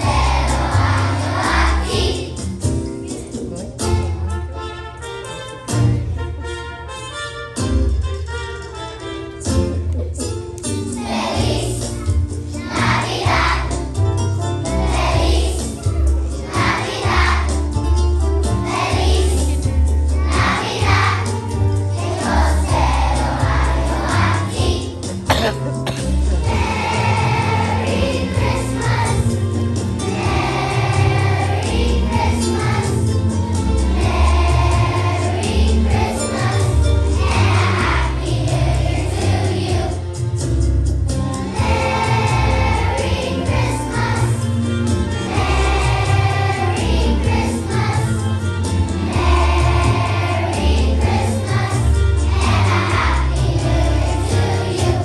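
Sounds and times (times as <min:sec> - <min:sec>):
children's choir singing: 0:00.0 - 0:02.6, 0:10.9 - 0:12.0, 0:12.6 - 0:13.9, 0:14.7 - 0:15.8, 0:16.4 - 0:17.7, 0:20.2 - 0:40.0, 0:41.5 - 0:44.6, 0:45.2 - 0:48.4, 0:49.0 - 0:55.0.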